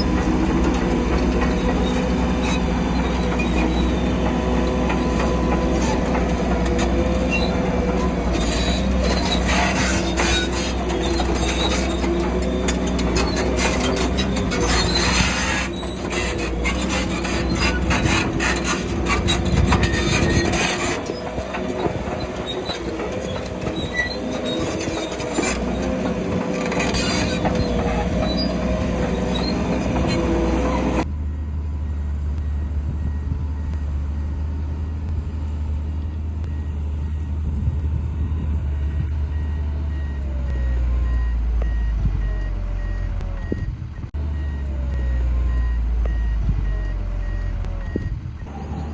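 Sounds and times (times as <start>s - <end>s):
steel tracks clanking: 0.0s - 31.0s
bulldozer diesel engine: 0.0s - 48.9s
reversing beeps: 31.1s - 35.1s, 36.4s - 37.5s, 38.2s - 48.6s.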